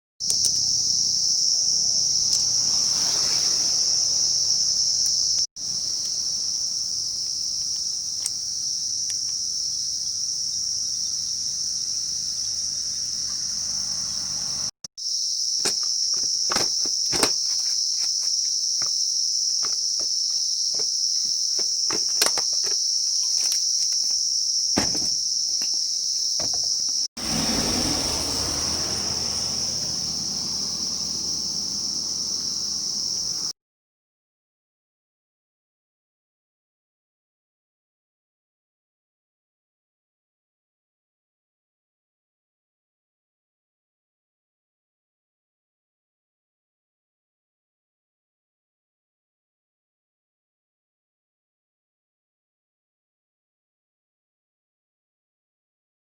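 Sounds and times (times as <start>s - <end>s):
crickets chirring: 0.2s - 33.5s.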